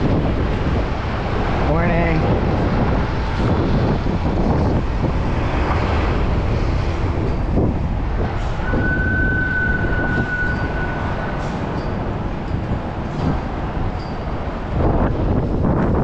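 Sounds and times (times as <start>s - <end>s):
bicycle road rumble: 0.0s - 16.0s
wind on microphone: 0.0s - 16.0s
high-pitched squeal: 8.2s - 12.1s.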